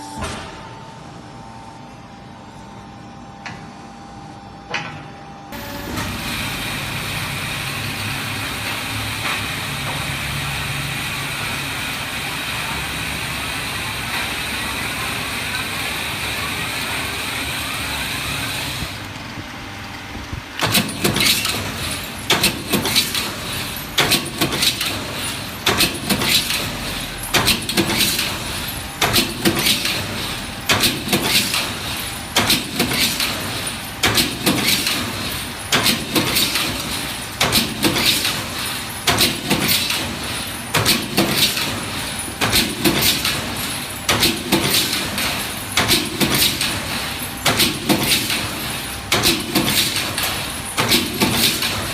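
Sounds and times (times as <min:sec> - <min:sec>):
machine running hum: 0:00.0 - 0:51.9
metallic punch clanks: 0:20.6 - 0:51.9.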